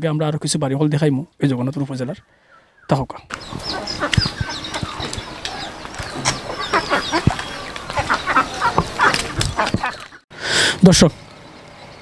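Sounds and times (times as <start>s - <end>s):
birds chirping: 1.1s - 12.0s
poultry clucking: 3.3s - 10.2s.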